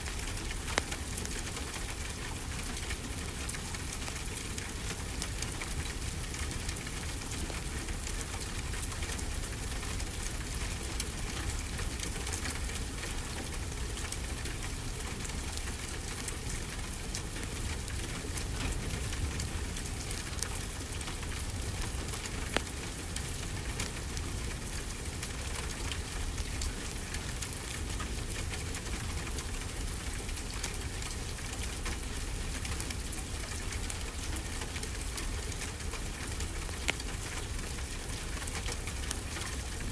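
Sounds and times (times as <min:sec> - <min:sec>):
steady rainfall: 0:00.0 - 0:39.9
wood fire crackling and popping: 0:00.1 - 0:05.6, 0:15.5 - 0:27.4, 0:32.6 - 0:39.9.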